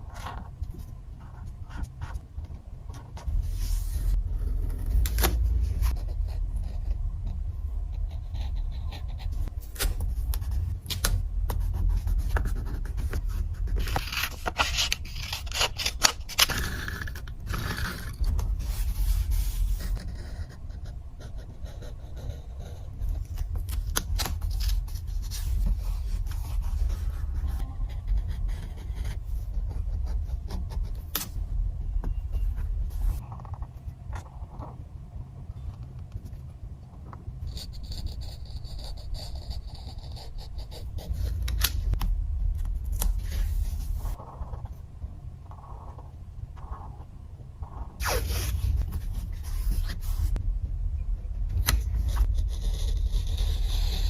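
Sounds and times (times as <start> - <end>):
low rumble: 0.0 - 54.0
paper scraping and rubbing: 3.2 - 6.5, 8.5 - 20.6, 22.8 - 31.4, 43.0 - 44.6, 48.0 - 50.4
scissors cutting paper: 9.8 - 18.5.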